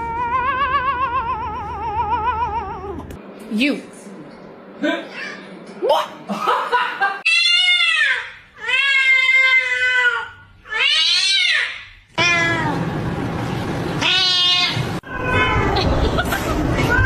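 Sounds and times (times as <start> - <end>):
cat meowing: 12.2 - 12.8, 14.0 - 15.8.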